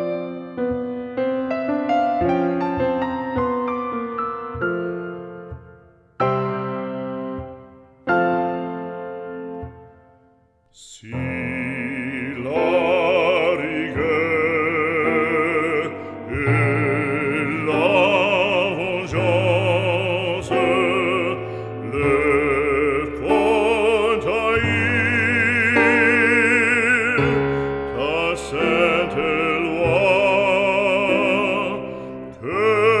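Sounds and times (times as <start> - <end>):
classical accompaniment: 0.0 - 33.0
operatic voice singing: 10.7 - 33.0.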